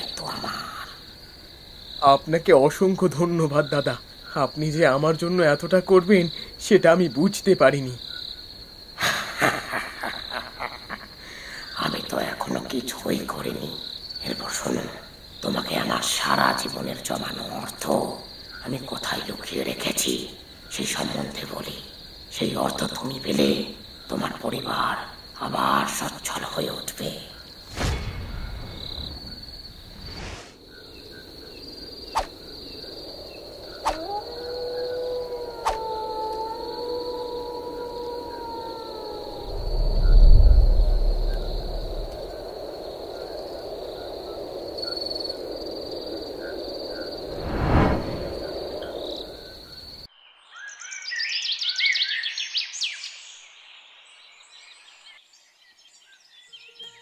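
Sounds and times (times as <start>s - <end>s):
crickets chirping: 0.0s - 57.0s
whoosh: 27.7s - 30.6s, 47.2s - 49.5s
animal howl: 33.8s - 42.3s
birdsong chirps: 48.5s - 57.0s.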